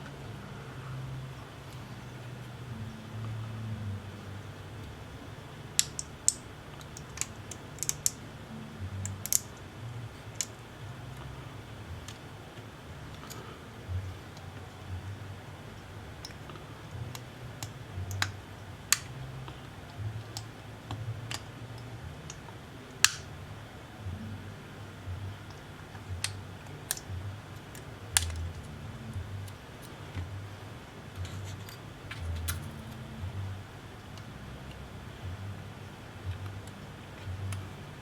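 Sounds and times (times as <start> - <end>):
low uneven hum: 0.0 - 38.0
hand tools clicking and tapping: 5.7 - 8.2, 25.5 - 28.7, 31.2 - 33.0.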